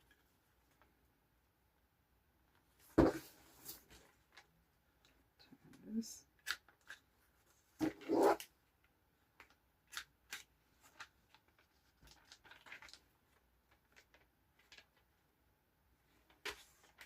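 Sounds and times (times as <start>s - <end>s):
paper handling noise: 9.4s - 15.1s.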